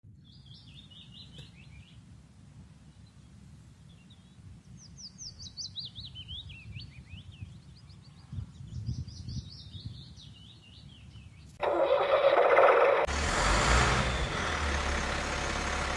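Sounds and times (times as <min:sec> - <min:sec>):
small birds chirping: 0:00.1 - 0:02.0, 0:02.9 - 0:11.6.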